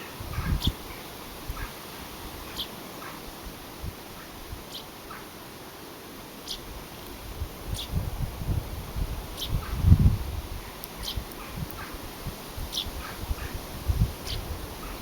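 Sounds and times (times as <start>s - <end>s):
small birds chirping: 0.0s - 3.3s, 4.1s - 5.4s, 6.4s - 6.7s, 7.7s - 8.0s, 9.3s - 12.0s, 12.6s - 13.6s, 14.2s - 15.0s.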